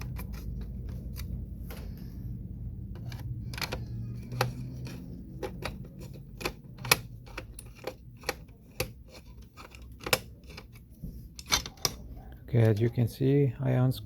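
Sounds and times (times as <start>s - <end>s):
screws and small parts clicking: 0.0s - 2.0s, 2.9s - 12.0s.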